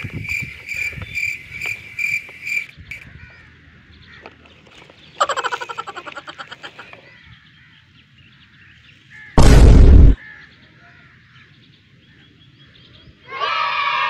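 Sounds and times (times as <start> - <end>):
loud harsh cry: 13.3 - 14.0.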